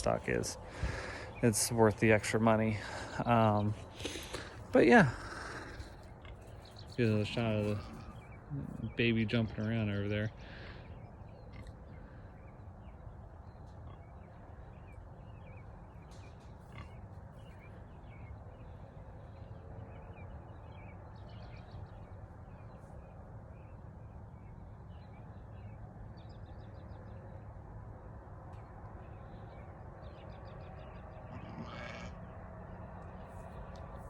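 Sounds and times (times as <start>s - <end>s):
low outdoor rumble: 0.0s - 34.0s
small birds chirping: 0.0s - 34.0s.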